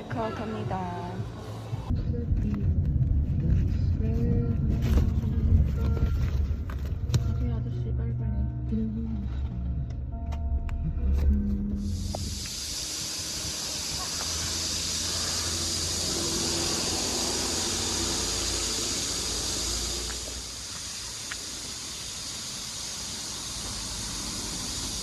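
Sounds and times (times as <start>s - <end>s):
low rumble: 1.3s - 21.4s
high-pitched hiss: 11.8s - 25.0s.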